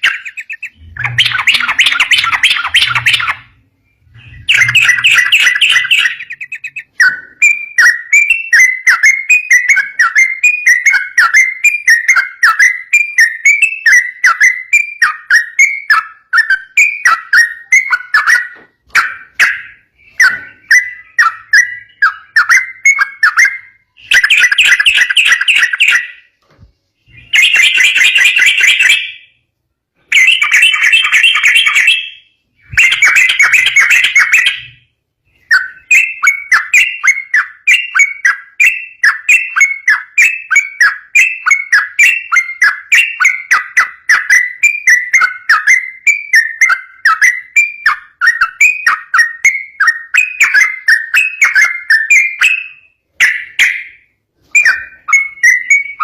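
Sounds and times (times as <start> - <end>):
bird harsh chattering: 0.0 - 3.5, 4.1 - 26.2, 30.1 - 34.8
bird whistling rapid song: 0.0 - 26.4, 27.0 - 29.4, 30.0 - 56.0.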